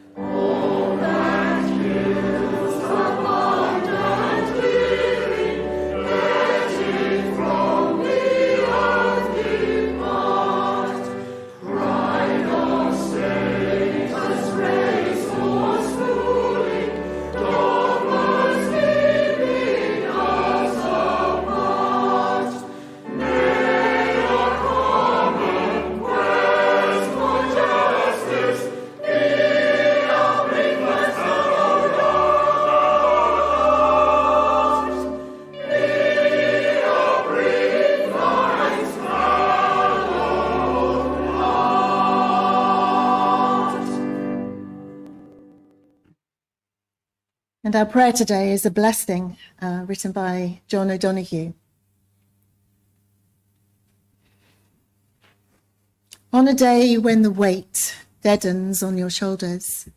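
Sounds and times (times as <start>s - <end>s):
congregation singing a hymn: 0.0s - 45.5s.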